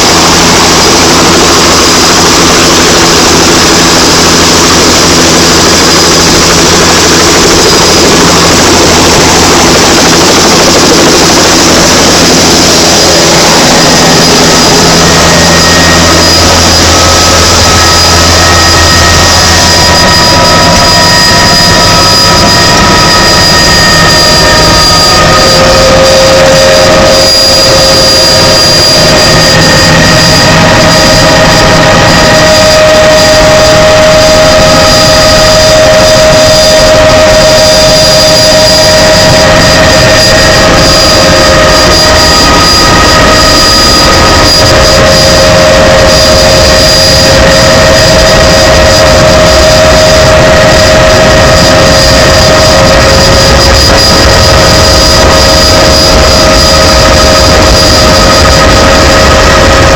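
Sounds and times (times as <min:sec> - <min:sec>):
helicopter turbine and rotor: 0:00.0 - 0:59.9
high whining tones: 0:00.0 - 0:59.9.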